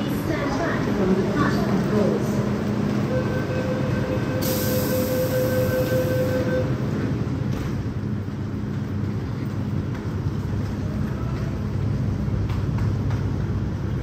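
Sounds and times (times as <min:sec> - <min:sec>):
train running rumble: 0:00.0 - 0:14.0.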